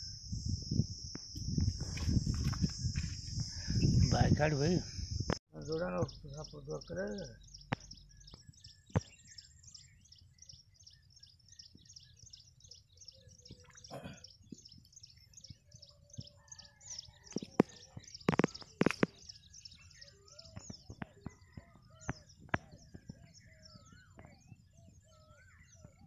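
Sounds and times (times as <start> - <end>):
bird chirping fast: 1.4 - 26.0
bird warbling calls: 5.6 - 26.0.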